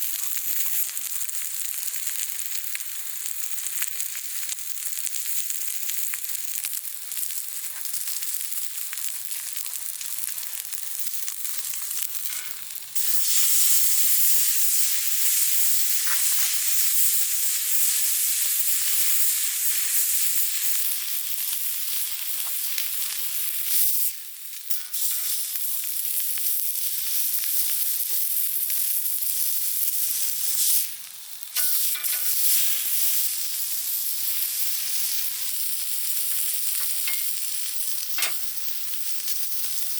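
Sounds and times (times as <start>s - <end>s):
meat sizzling in hot fat: 0.0s - 39.9s.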